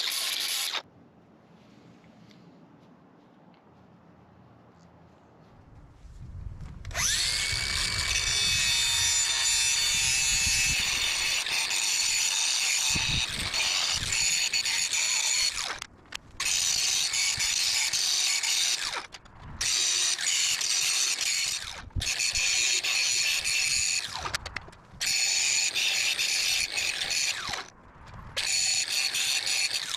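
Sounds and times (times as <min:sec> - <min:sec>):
power tool running: 0:06.9 - 0:24.4.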